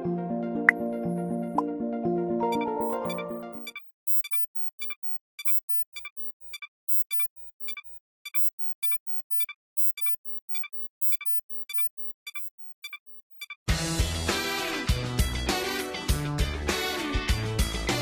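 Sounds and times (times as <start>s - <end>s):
toy robot dog double beeps: 2.8s - 13.6s.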